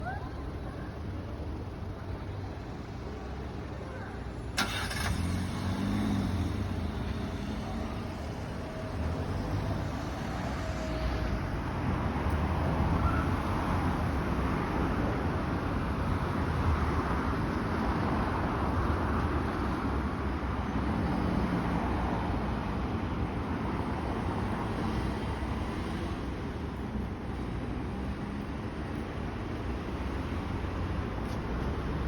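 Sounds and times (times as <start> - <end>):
road vehicle rumble: 0.0 - 32.0
road vehicle hiss: 3.1 - 11.3.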